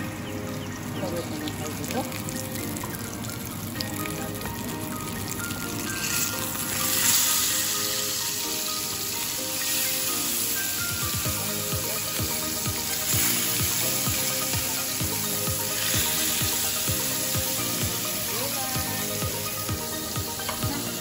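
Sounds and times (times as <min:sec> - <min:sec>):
fish sizzling in frying pan: 0:01.0 - 0:21.0.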